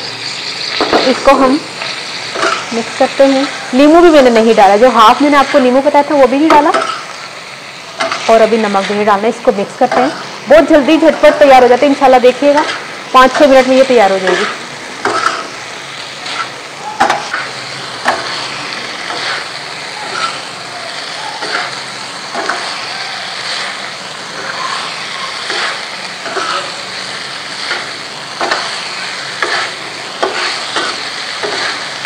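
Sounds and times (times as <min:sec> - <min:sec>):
meat sizzling in oil: 0:00.0 - 0:32.0
metal spatula scraping and clinking: 0:14.2 - 0:15.5, 0:19.0 - 0:20.5, 0:24.4 - 0:26.8, 0:29.4 - 0:31.9.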